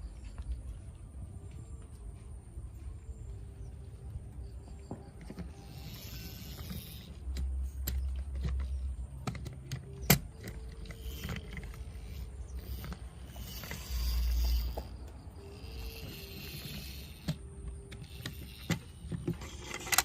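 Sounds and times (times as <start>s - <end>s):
toy trucks clicking and knocking: 4.7s - 20.0s.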